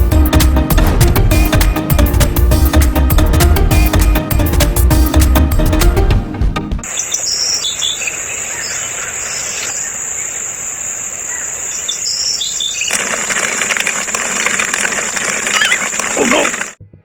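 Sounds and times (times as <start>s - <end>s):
birds chirping: 6.8s - 16.8s
high insect drone: 6.9s - 16.7s.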